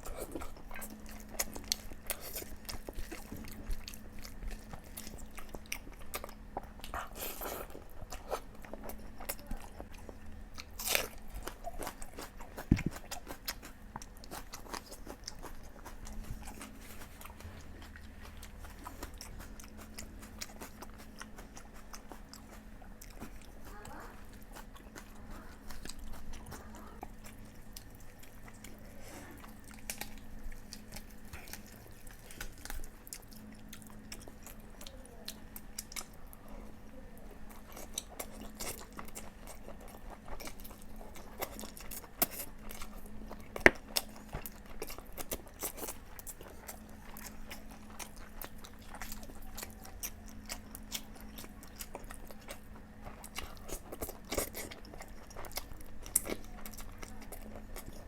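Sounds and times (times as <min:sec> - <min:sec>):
person chewing food: 0:00.0 - 0:58.0.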